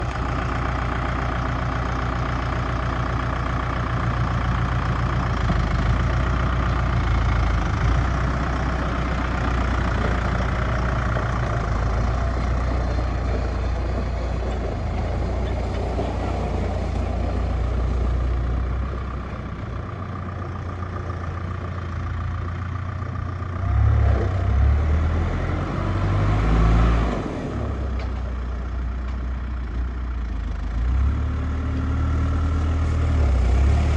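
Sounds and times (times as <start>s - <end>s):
tractor diesel engine idling: 0.0s - 33.9s
engine revving: 23.6s - 27.9s, 30.8s - 33.9s.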